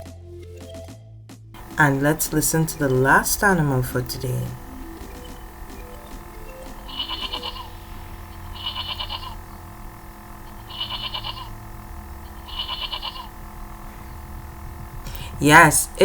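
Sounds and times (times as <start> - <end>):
goat bleating: 6.7 - 9.5, 10.4 - 13.4.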